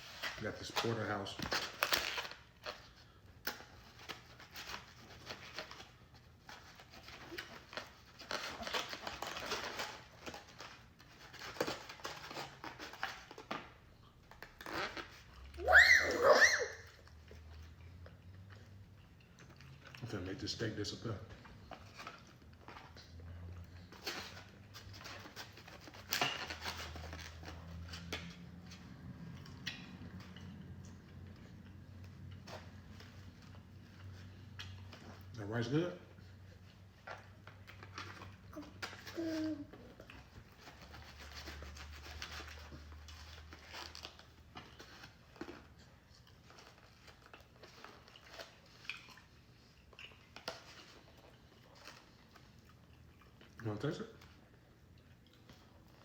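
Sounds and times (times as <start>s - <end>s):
utensil clicks and rustles: 0.0s - 15.6s, 16.9s - 56.0s
chewing: 17.0s - 20.3s, 39.8s - 56.0s.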